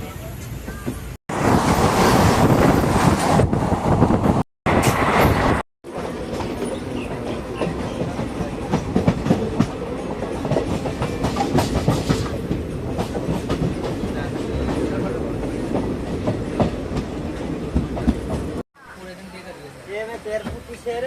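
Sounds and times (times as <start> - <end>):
train wheels clattering on rails: 4.3 - 18.6.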